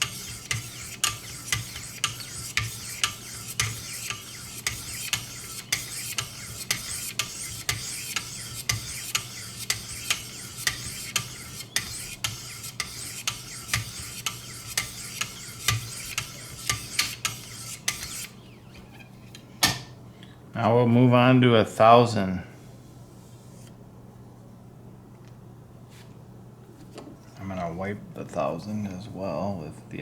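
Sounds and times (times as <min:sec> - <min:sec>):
sharpening stone scraping knife edge: 0:00.0 - 0:18.4.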